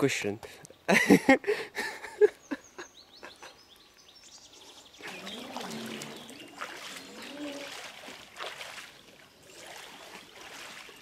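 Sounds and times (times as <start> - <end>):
bird chirping: 2.0 - 7.8
water sloshing and splashing: 5.0 - 11.0.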